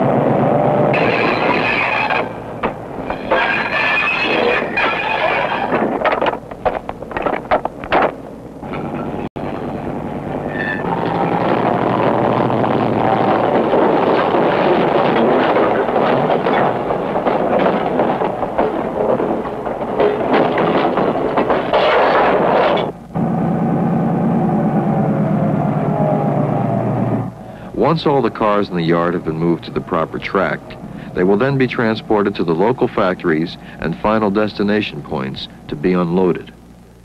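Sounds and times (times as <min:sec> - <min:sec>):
freight cars clattering over rails: 0:00.0 - 0:23.4
diesel locomotive engine drone: 0:00.0 - 0:37.0.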